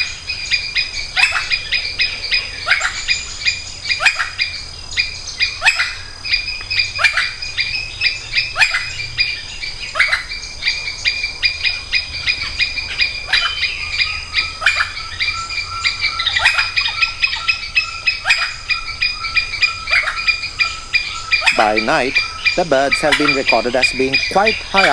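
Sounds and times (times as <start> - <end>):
downward sweeping chirps: 21.1 - 24.9.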